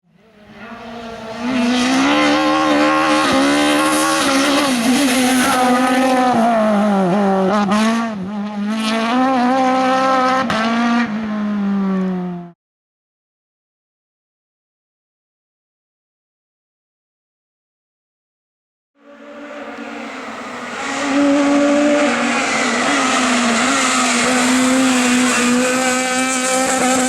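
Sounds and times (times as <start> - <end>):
race car engine at full throttle: 0.0 - 12.6, 19.0 - 27.0.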